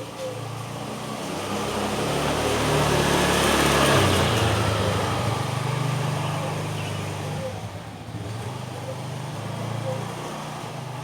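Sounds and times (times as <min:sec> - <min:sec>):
vehicle engine passing by: 0:00.8 - 0:11.0.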